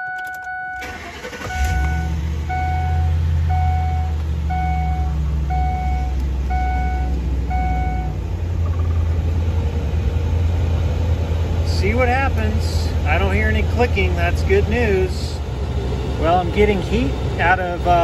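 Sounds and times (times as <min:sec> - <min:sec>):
dashboard warning chime beeping: 0:00.0 - 0:09.0
car engine starting and idling: 0:00.0 - 0:18.0.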